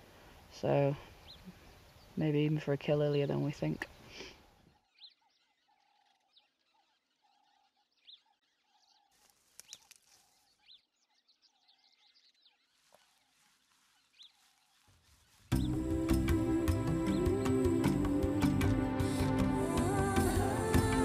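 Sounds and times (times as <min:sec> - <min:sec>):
bird chirps: 0:00.3 - 0:17.9.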